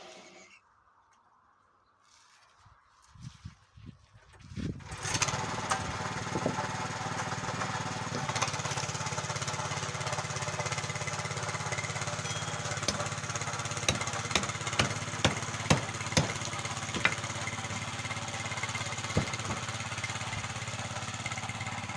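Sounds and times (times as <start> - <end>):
motor running steadily: 5.0 - 21.9
sharp knocks: 12.3 - 13.2, 13.9 - 17.5, 19.1 - 19.8.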